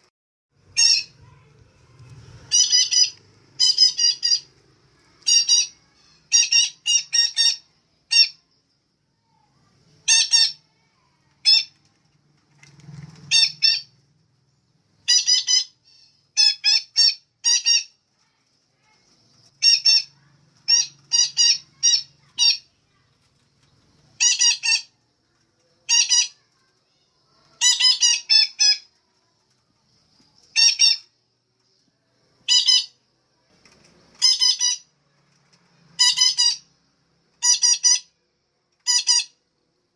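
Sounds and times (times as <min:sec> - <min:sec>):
parakeet calling: 0:00.7 - 0:01.4, 0:02.5 - 0:04.5, 0:05.2 - 0:08.4, 0:10.0 - 0:10.6, 0:13.3 - 0:13.9, 0:15.0 - 0:18.0, 0:19.6 - 0:22.7, 0:24.2 - 0:24.9, 0:27.6 - 0:28.9, 0:30.5 - 0:31.1, 0:32.4 - 0:33.0, 0:34.2 - 0:34.9, 0:36.0 - 0:36.7, 0:37.4 - 0:38.1, 0:38.8 - 0:39.4.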